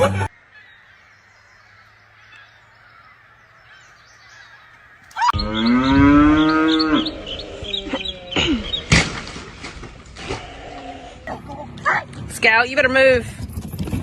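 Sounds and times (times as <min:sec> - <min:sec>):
long loud animal call: 0:03.6 - 0:08.9.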